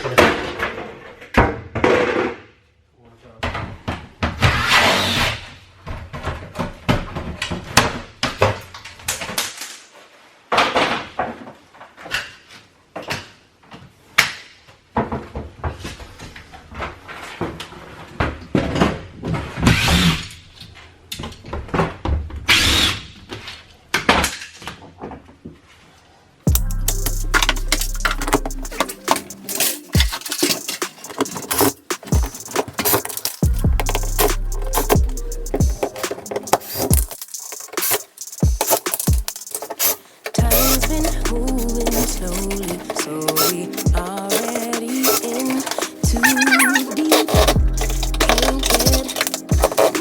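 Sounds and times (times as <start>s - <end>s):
background music: 26.5s - 39.6s, 40.4s - 50.0s.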